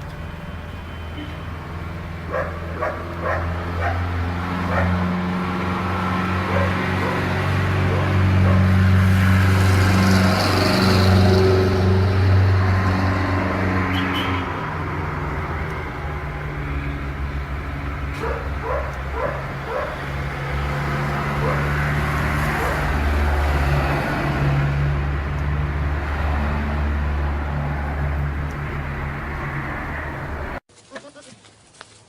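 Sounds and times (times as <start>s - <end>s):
dog barking: 2.3s - 5.0s, 6.4s - 8.7s, 18.2s - 20.0s, 21.4s - 21.7s, 22.5s - 22.9s.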